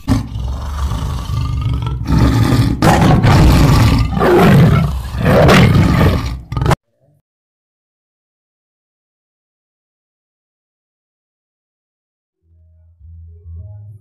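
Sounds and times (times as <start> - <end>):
deep animal roaring: 0.0 - 6.8.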